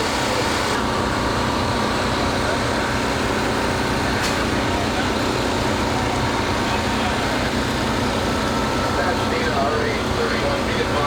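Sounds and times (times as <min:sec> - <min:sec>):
heavy vehicle engines rumbling: 0:00.0 - 0:11.0.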